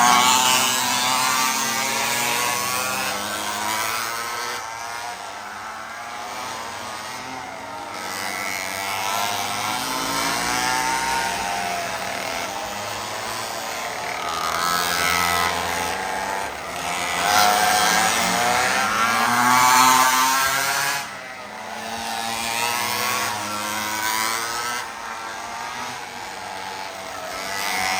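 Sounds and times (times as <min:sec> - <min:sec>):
mini bike engines revving: 0:00.0 - 0:27.9.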